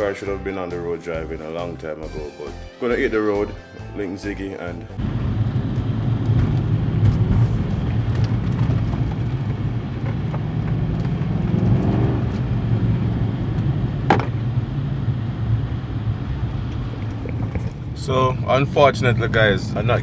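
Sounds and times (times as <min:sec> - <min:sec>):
car engine running: 0:04.9 - 0:20.0.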